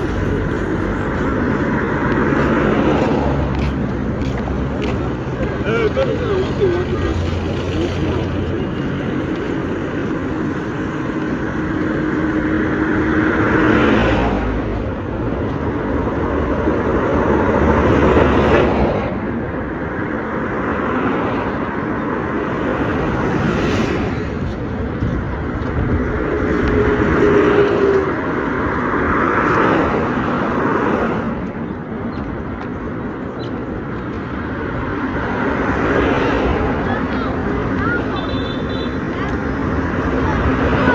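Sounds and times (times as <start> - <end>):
engine and tyre noise: 0.0 - 40.9
vehicles driving past: 0.0 - 40.9.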